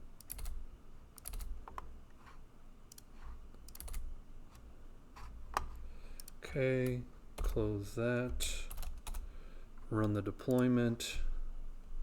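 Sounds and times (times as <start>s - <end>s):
low steady hum: 0.0s - 12.0s
keyboard keys clicking: 0.2s - 0.5s, 1.2s - 1.8s, 3.7s - 4.0s.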